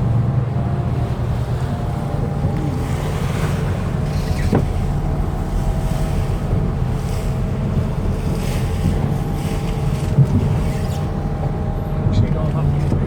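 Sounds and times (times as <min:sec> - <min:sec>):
motorboat engine running: 0:00.0 - 0:13.0
water washing around hull: 0:00.0 - 0:13.0
wind buffeting microphone: 0:00.0 - 0:13.0.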